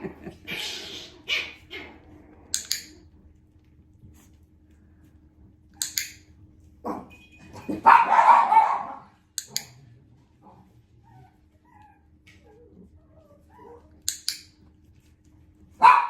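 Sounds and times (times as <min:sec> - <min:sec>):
dog barking: 0:06.8 - 0:09.2, 0:15.8 - 0:16.0.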